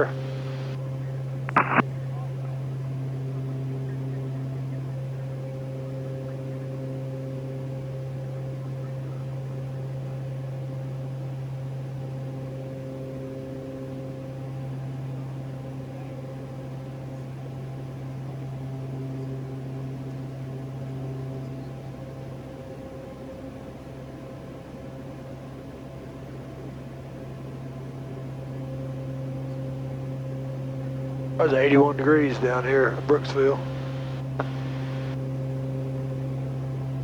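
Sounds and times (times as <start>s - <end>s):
faint humming tones: 0.0s - 10.2s, 27.5s - 37.0s
turboprop cabin drone: 0.0s - 37.0s.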